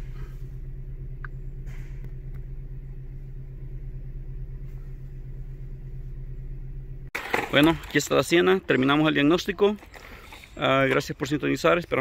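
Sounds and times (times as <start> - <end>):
car engine hum from inside: 0.0 - 7.2.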